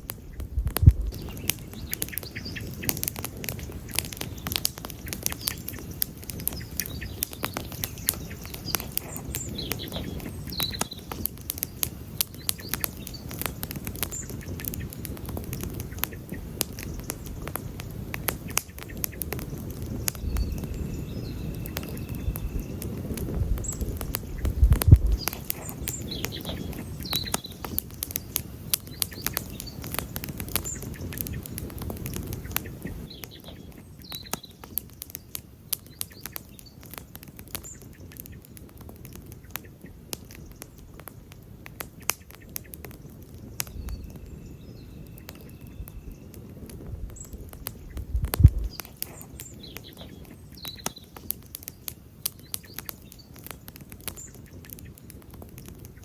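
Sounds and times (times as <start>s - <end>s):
campfire crackling and popping: 0.0s - 56.0s
low rumble of burning wood: 0.0s - 56.0s
faint bird chirps: 0.2s - 17.8s, 18.4s - 41.0s, 42.2s - 56.0s.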